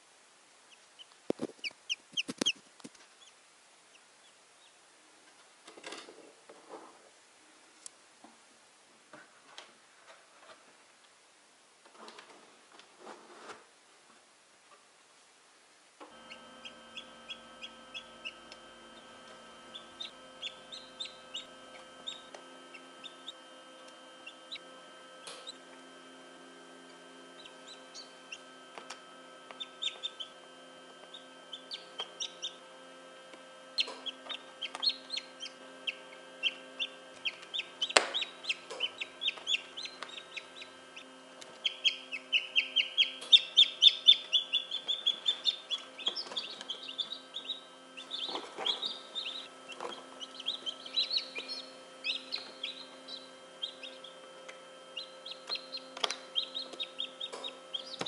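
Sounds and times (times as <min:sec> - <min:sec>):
steady hum: 0:00.0 - 0:05.7, 0:13.8 - 0:58.0
chick peeping: 0:00.7 - 0:04.8, 0:16.1 - 0:25.6, 0:26.9 - 0:30.4, 0:31.0 - 0:32.6, 0:33.7 - 0:58.0.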